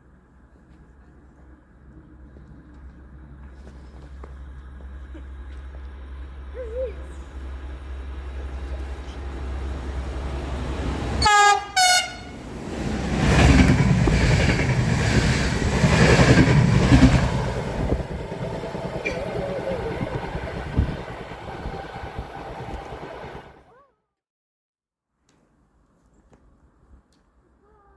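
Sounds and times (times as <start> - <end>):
train wheels rumbling on rail: 0.1 - 23.6
train horn blasts: 11.1 - 12.6.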